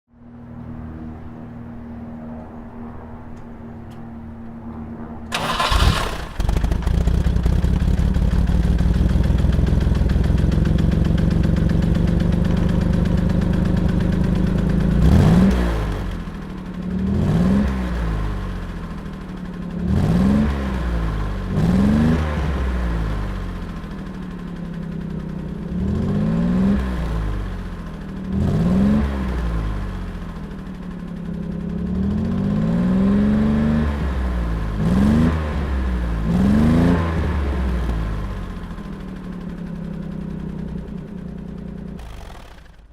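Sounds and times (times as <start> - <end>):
car engine starting and revving: 5.3 - 11.7, 14.8 - 19.2, 19.8 - 24.0, 25.7 - 30.7, 32.0 - 40.0, 41.7 - 42.9.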